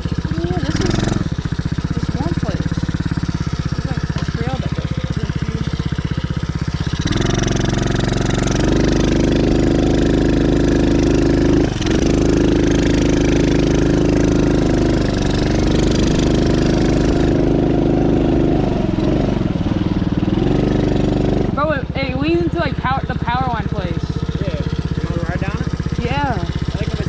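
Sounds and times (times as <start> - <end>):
dirt bike engine running: 0.0 - 27.0.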